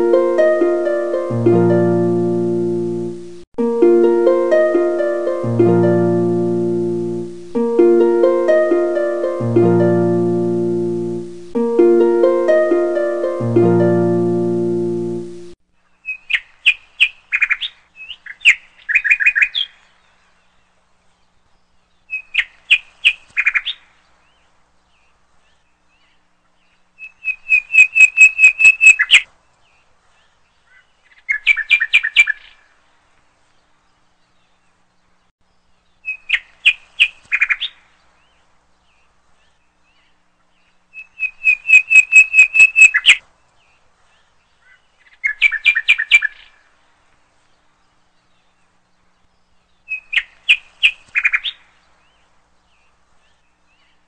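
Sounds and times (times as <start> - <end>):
songbird singing: 0.0 - 32.6, 33.6 - 46.6, 47.4 - 54.0
lower buzzy bird call: 41.2 - 43.2.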